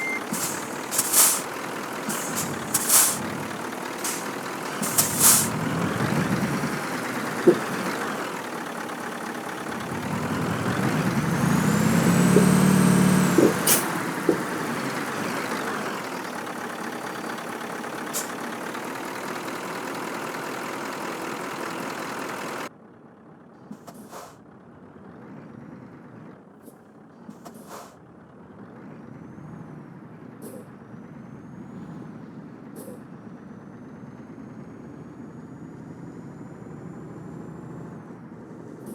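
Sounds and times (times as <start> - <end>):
truck diesel engine under load: 0.0 - 38.9
sharp hisses: 0.3 - 3.4, 4.0 - 5.6.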